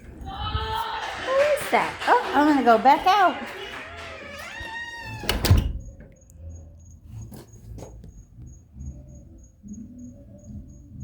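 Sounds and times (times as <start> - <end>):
door creaking and shutting: 3.7 - 6.2
cricket chirping: 5.0 - 11.0.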